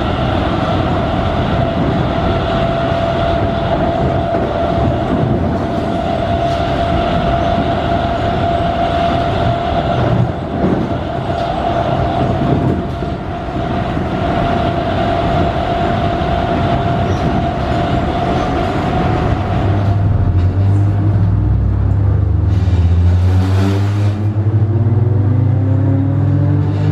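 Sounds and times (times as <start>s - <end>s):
electric train motors whining: 0.0s - 21.0s
wheels rumbling on rail: 0.0s - 26.9s.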